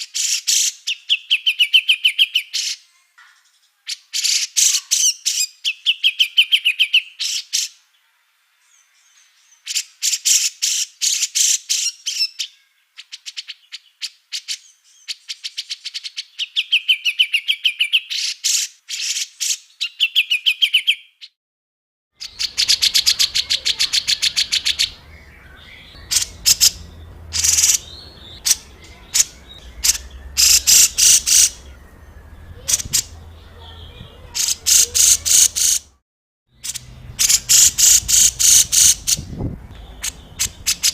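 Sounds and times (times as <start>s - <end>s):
songbird chattering: 22.2s - 36.0s, 36.6s - 40.9s
low hum: 25.0s - 33.5s.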